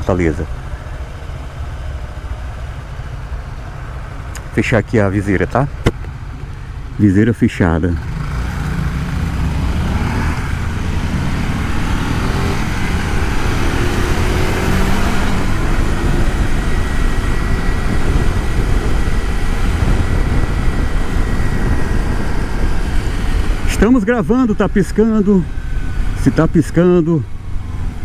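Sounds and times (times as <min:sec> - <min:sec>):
motorcycle engine: 0:00.0 - 0:07.1, 0:07.7 - 0:28.0
wind noise on helmet: 0:08.7 - 0:23.8, 0:27.3 - 0:28.0.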